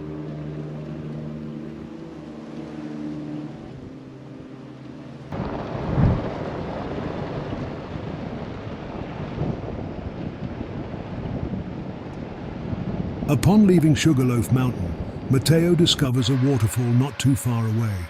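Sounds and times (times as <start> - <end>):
soft background music: 0.0 - 5.4
wind buffeting microphone: 5.3 - 18.0.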